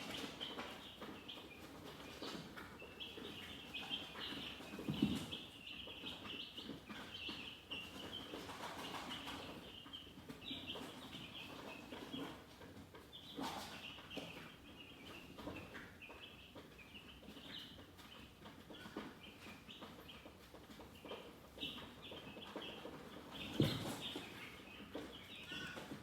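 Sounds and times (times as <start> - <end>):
chickens clucking: 0.0 - 26.0
chicks peeping: 0.0 - 26.0.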